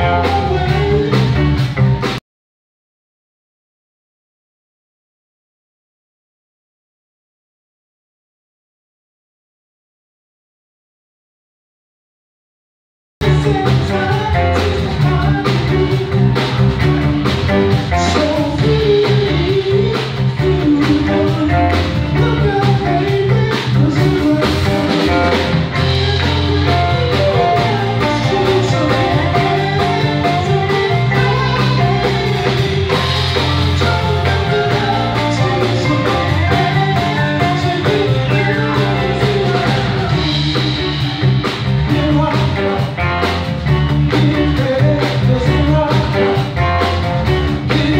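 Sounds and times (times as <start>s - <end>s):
blues-rock band music: 0.0s - 2.2s, 13.2s - 47.9s.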